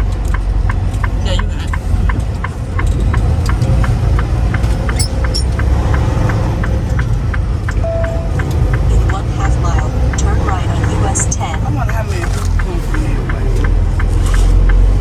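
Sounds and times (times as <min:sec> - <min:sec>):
diesel engine rumbling: 0:00.0 - 0:15.0
fast regular ticking: 0:00.0 - 0:15.0
short beep: 0:07.8 - 0:08.4.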